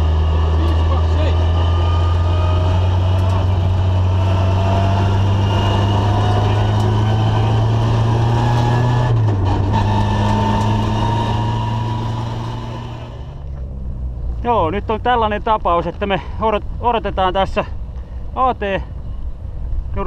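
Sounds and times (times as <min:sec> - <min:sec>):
car engine from inside cabin: 0:00.0 - 0:15.0
tyres on gravel road: 0:00.0 - 0:20.0.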